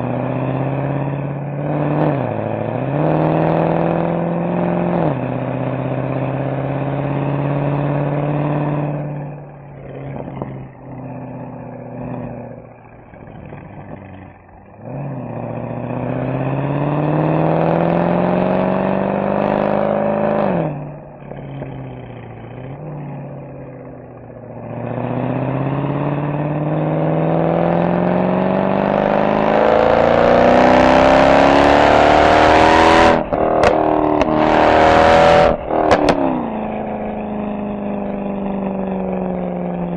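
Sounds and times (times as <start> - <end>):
car engine revving: 0.0 - 39.9
exhaust pops and crackles: 9.6 - 11.1, 33.2 - 34.6, 35.4 - 37.2.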